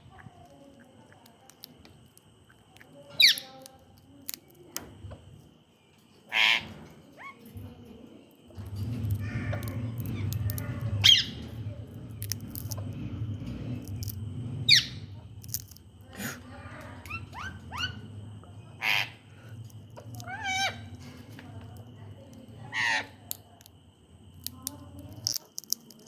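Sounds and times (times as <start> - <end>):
low hum: 8.6 - 25.2
parrot squawking and chirping: 18.8 - 19.2.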